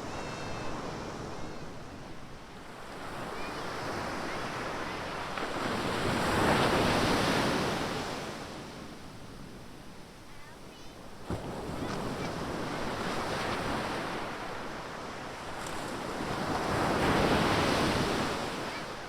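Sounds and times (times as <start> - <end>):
hiss of surf: 0.0 - 3.5.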